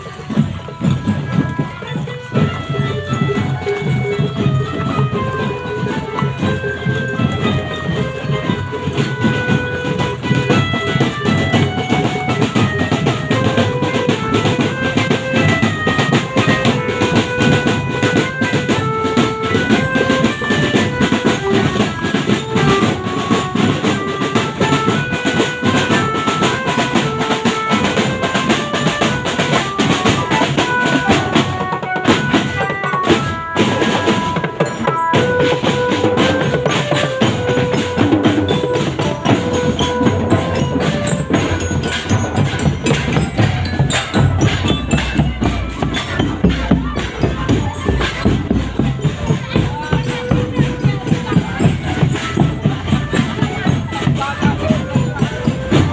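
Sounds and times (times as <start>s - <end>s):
busy drumming: 0.0s - 55.9s
gamelan-style ensemble: 0.0s - 55.9s.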